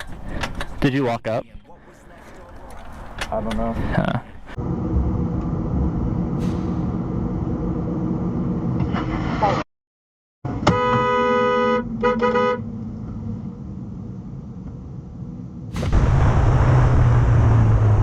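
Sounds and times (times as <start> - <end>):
road noise: 0.0 - 9.6, 10.5 - 18.0
vehicle horn honking: 10.6 - 12.6.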